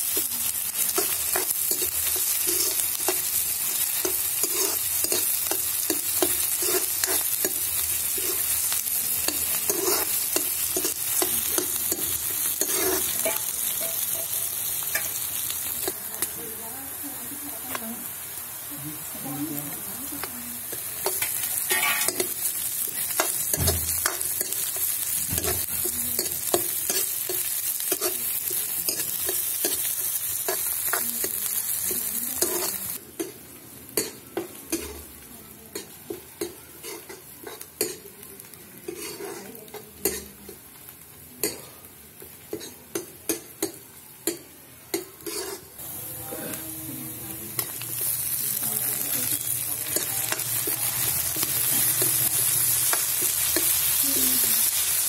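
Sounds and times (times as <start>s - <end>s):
onions sizzling in hot oil: 0.0s - 55.0s
steel ladle scraping a pan: 4.4s - 5.3s, 9.4s - 15.2s, 21.0s - 25.6s, 38.9s - 40.3s, 45.2s - 45.8s.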